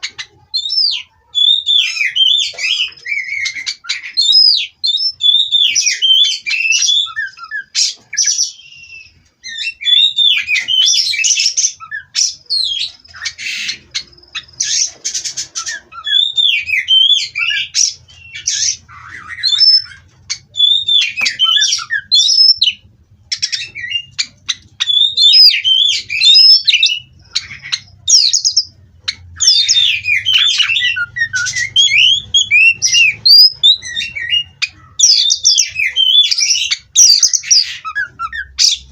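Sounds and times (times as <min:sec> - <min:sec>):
bird singing whistled notes and squawks: 0:00.0 - 0:38.9.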